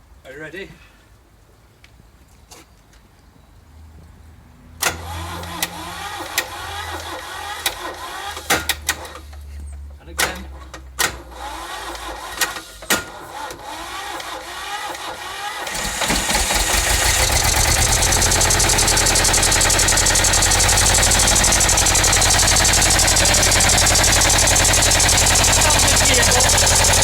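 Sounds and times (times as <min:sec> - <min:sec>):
diesel boat engine starting: 0:04.8 - 0:27.0
diesel engine pulsing: 0:05.0 - 0:09.3, 0:13.6 - 0:27.0.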